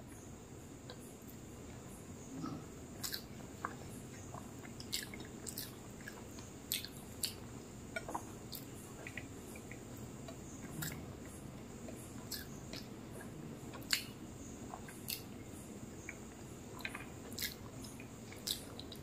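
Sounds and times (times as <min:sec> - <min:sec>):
person chewing: 0:02.4 - 0:09.8, 0:10.6 - 0:15.3, 0:16.0 - 0:19.0
wet mouth clicks: 0:03.0 - 0:03.3, 0:04.2 - 0:07.4, 0:10.7 - 0:11.0, 0:13.8 - 0:15.3, 0:16.8 - 0:19.0.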